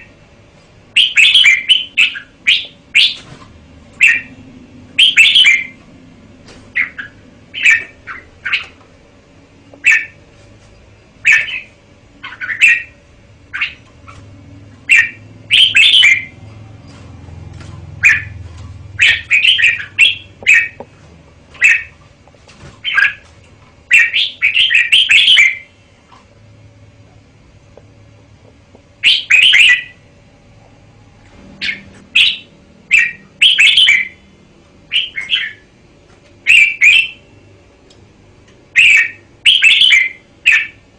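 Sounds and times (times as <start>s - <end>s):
bird singing: 0.9s - 3.2s, 3.9s - 5.8s, 6.7s - 8.8s, 9.7s - 10.2s, 11.2s - 17.0s, 17.9s - 20.8s, 21.6s - 22.0s, 23.9s - 25.7s, 29.0s - 30.0s, 31.6s - 34.3s, 34.9s - 35.7s, 36.4s - 37.4s, 38.7s - 40.8s.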